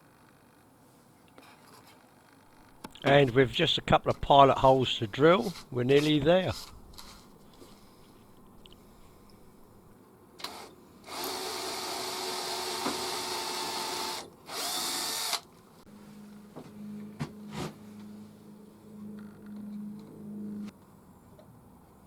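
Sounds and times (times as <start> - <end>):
power drill drilling: 10.4 - 15.4
faint low hum: 15.9 - 22.0.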